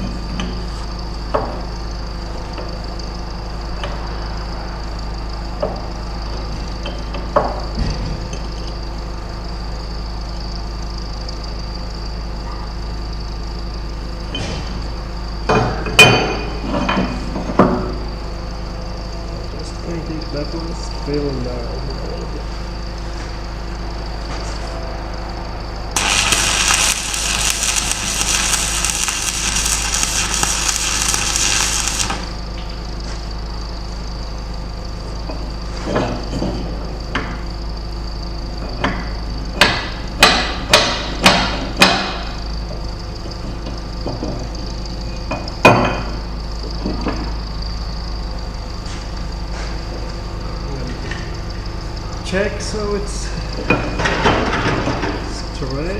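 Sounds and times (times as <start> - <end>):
steady background hum: 0.0 - 55.9
welding arc crackle: 26.0 - 32.5.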